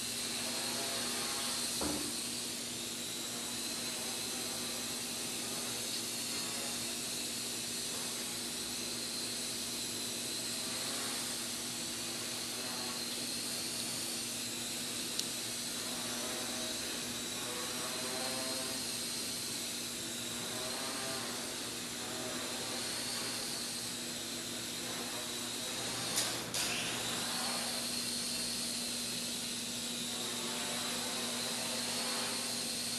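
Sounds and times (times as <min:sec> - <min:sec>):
quadcopter motors whining: 0:00.0 - 0:32.9.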